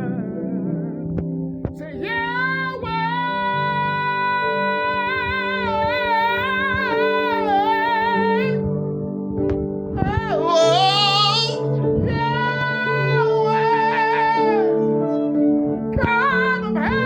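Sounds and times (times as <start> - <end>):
man singing a held note: 10.4 - 11.6.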